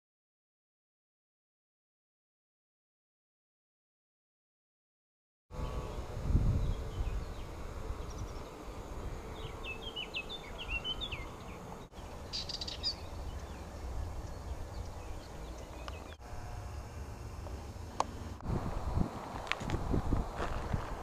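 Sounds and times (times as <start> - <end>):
wild birds singing: 5.6 - 16.2.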